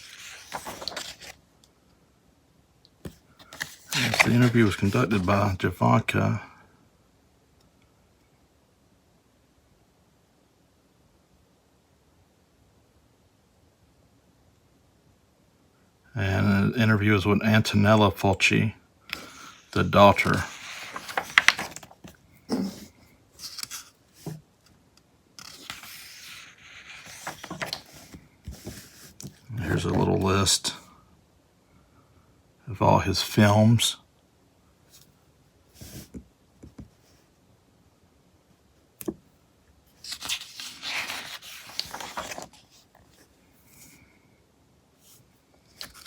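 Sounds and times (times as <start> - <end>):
magazine pages rustling: 0.0 - 1.4, 3.1 - 5.6, 19.1 - 24.4, 25.4 - 30.6, 40.0 - 44.0, 45.7 - 46.0.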